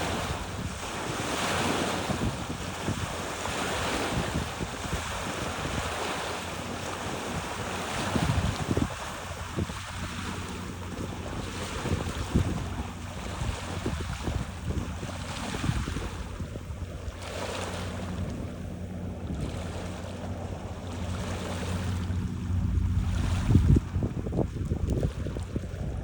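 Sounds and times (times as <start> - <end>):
steady low drone: 0.0 - 26.0
waves lapping on rocky shore: 0.0 - 26.0
wind buffeting microphone: 0.0 - 26.0.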